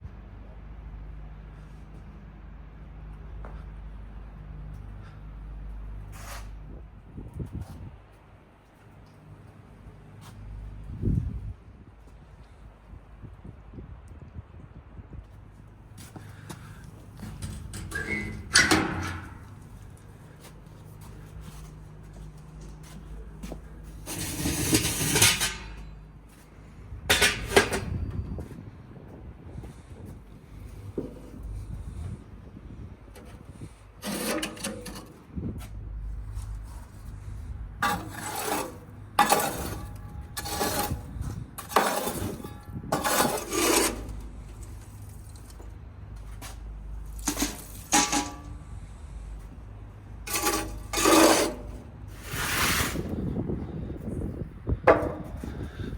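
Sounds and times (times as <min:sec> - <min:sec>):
charcoal lumps clinking on grill: 0:47.1 - 0:48.6.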